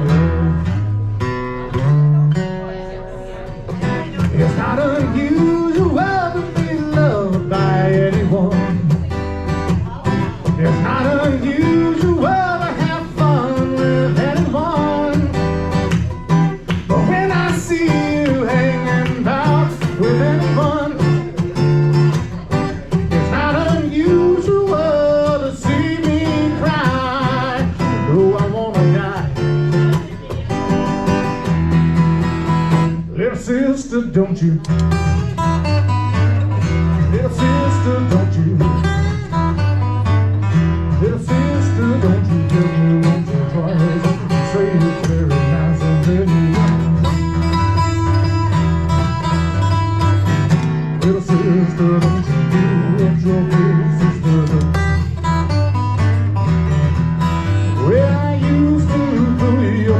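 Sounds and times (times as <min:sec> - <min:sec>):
acoustic guitar strummed: 0:00.0 - 0:59.9
person singing: 0:02.1 - 0:15.6, 0:16.6 - 0:30.4, 0:36.7 - 0:39.0, 0:40.9 - 0:47.1, 0:51.0 - 0:55.0.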